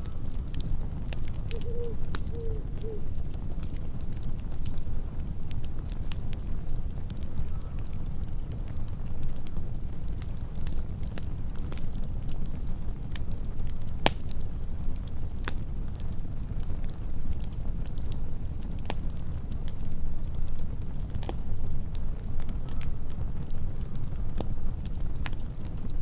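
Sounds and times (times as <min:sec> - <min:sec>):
cricket chirping: 0:00.0 - 0:04.2, 0:21.3 - 0:25.8
campfire rumbling: 0:00.0 - 0:26.0
fire crackles and pops: 0:00.0 - 0:26.0.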